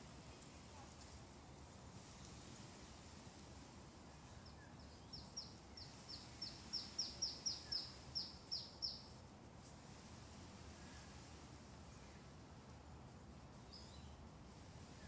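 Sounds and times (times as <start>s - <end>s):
small bird singing: 4.3s - 9.1s.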